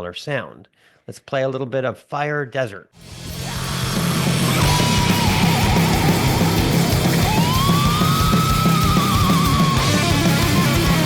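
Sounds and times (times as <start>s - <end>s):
death metal music: 3.0s - 11.0s
distorted lead guitar bend: 3.0s - 11.0s.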